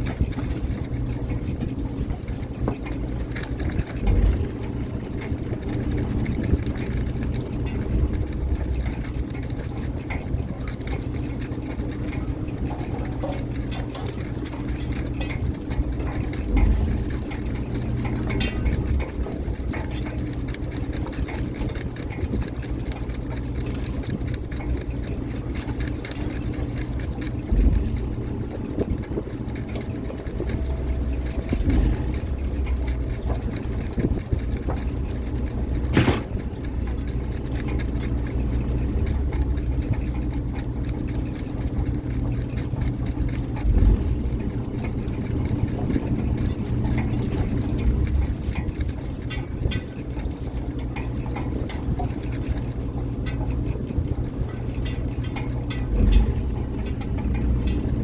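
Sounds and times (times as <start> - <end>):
boat engine humming: 0.0 - 58.0.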